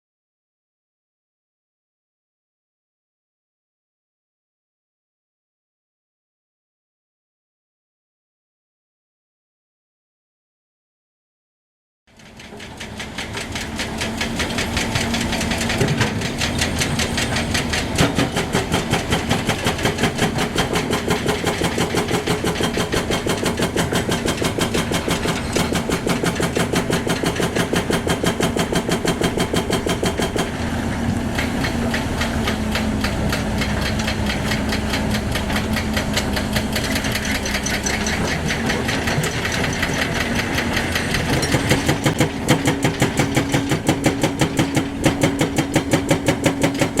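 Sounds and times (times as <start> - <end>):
excavator diesel engine running: 12.1 - 47.0.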